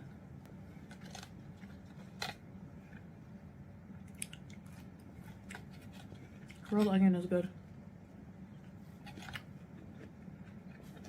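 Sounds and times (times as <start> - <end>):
low steady hum: 0.0 - 11.0
soft chewing: 0.4 - 7.0, 8.1 - 11.0.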